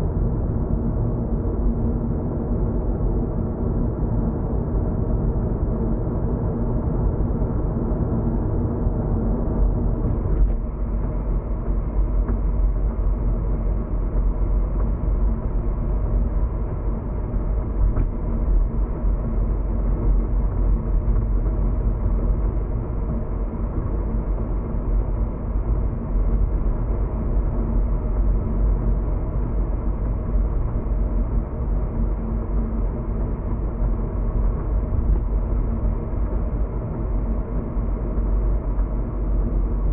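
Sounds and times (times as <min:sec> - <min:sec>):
car tyres and engine rumble: 0:08.1 - 0:39.9.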